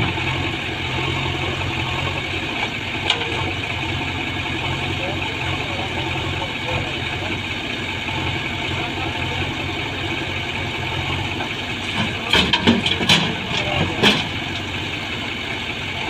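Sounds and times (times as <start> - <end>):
diesel engine idling: 0.0 - 16.0
sharp knocks and clatter: 11.4 - 14.7.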